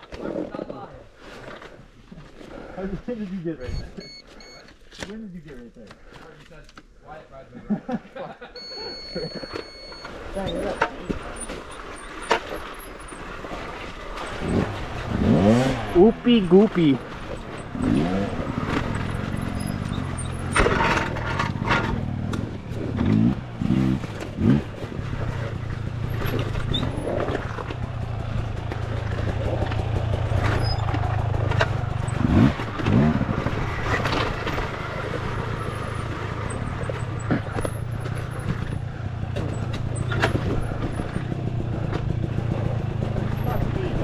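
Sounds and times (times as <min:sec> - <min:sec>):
dirt bike engine running: 0:09.1 - 0:44.0
knocks and clatters: 0:17.0 - 0:44.0.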